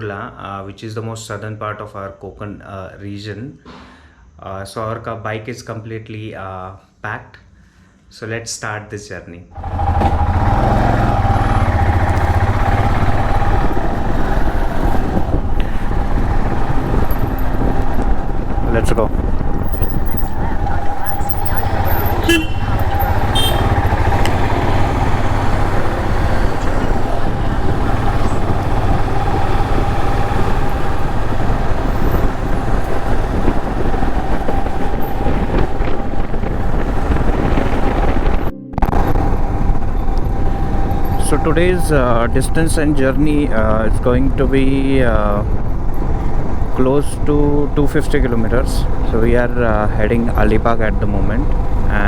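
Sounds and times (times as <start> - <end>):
motorcycle engine idling: 9.6 - 38.0, 38.8 - 52.0
wind noise on microphone: 10.0 - 52.0.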